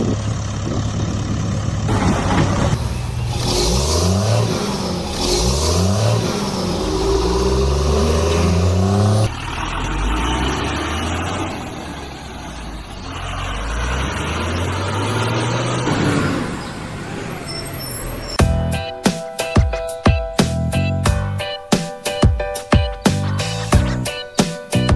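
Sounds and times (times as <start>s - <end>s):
heavy vehicle engine revving: 0.0s - 18.9s
noisier engine sound: 0.0s - 18.9s
music: 18.4s - 24.9s.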